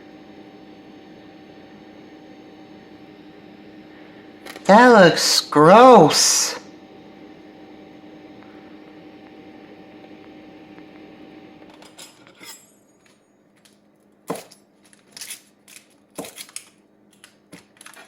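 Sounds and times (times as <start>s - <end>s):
steady hum: 0.0s - 12.2s
cutlery clinking against dish: 11.7s - 12.7s.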